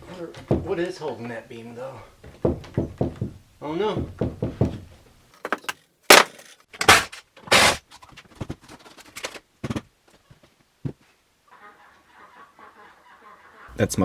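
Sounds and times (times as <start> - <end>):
knocks on wooden framing: 0.0 - 0.9, 2.2 - 6.2.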